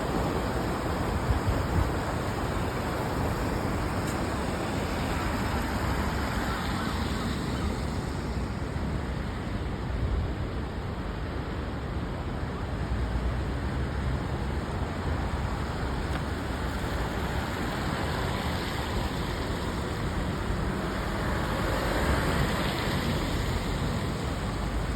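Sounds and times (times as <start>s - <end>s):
floodwater rushing: 0.0s - 9.0s, 14.9s - 24.9s.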